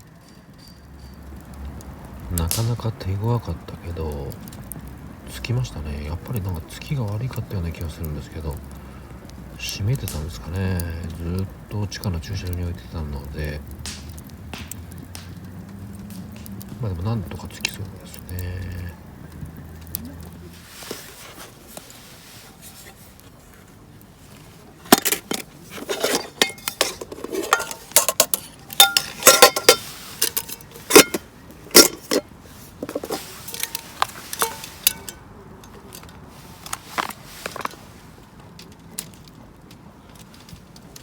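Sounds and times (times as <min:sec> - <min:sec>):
metal cookware clattering: 0:24.8 - 0:35.3.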